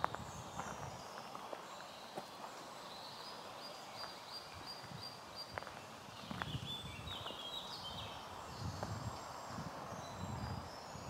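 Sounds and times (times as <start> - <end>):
soft footsteps on ground: 0.0 - 7.6, 8.6 - 9.7
small birds singing: 0.0 - 11.0.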